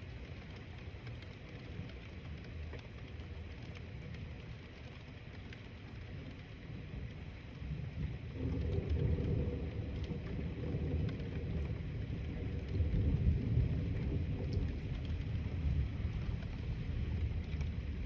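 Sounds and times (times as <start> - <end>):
light rain ticking: 0.0 - 18.0
low rolling thunder: 7.6 - 18.0.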